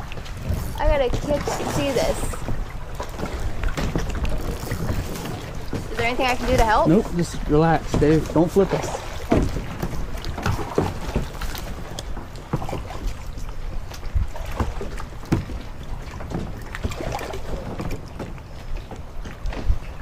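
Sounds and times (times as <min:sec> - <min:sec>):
water moving around kayak: 0:00.0 - 0:20.0
wind rumbling on microphone: 0:00.0 - 0:20.0.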